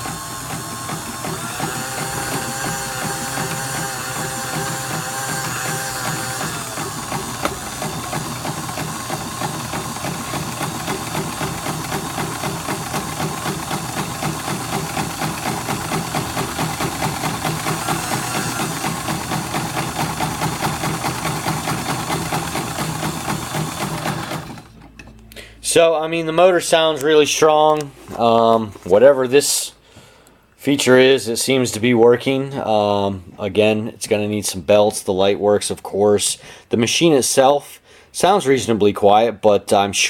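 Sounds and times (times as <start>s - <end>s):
sewing machine clatter: 0.0s - 25.0s
sewing machine motor hum: 0.0s - 25.0s.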